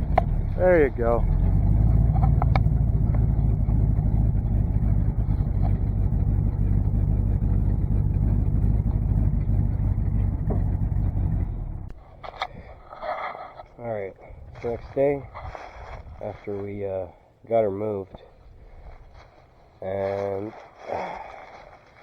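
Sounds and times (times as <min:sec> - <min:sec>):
dump truck engine rumbling: 0:00.0 - 0:16.4.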